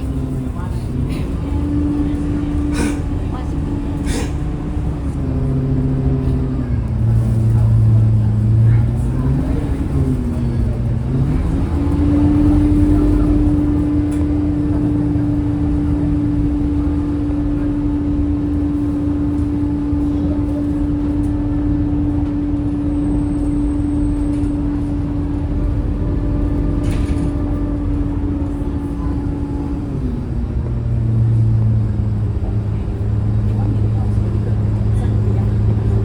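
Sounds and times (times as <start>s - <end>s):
bus diesel engine rumble: 0.0s - 36.0s
engine whine: 0.0s - 36.0s.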